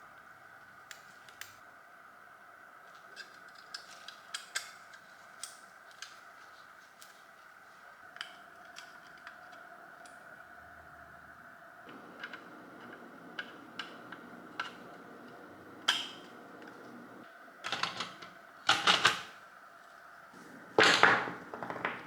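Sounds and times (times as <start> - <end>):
faint steady hum: 0.0 - 22.0
clattering of hard objects: 20.4 - 22.0.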